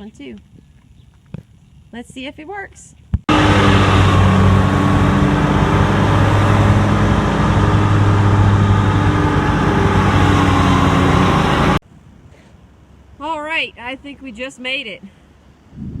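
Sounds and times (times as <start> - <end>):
riding lawn mower engine: 3.3 - 11.8.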